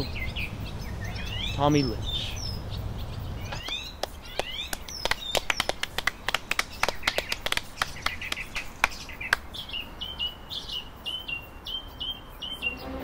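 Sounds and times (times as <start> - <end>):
bird chirping: 0.0 - 13.0
people clapping: 3.5 - 9.6.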